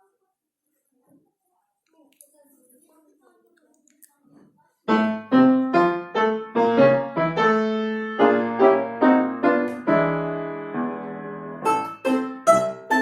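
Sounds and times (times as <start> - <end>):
piano: 4.9 - 13.0
plucked string instrument: 11.0 - 13.0.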